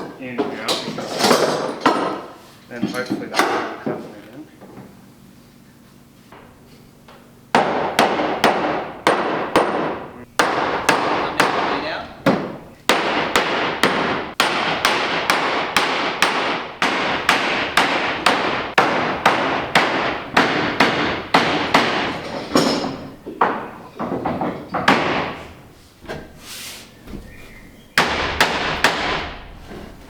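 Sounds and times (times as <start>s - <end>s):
hammer striking wooden plank: 7.5s - 25.5s, 28.0s - 29.5s.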